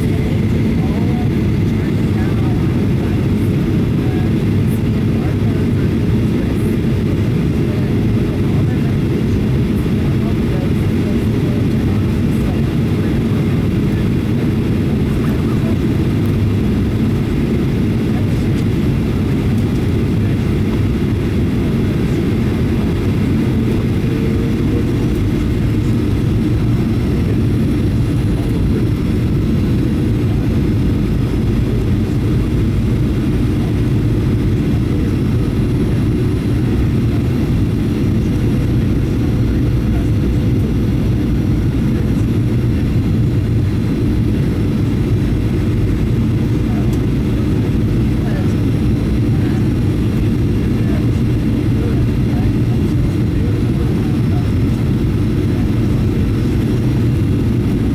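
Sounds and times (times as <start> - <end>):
airflow over fuselage: 0.0 - 57.9
jet engines rumbling: 0.0 - 57.9.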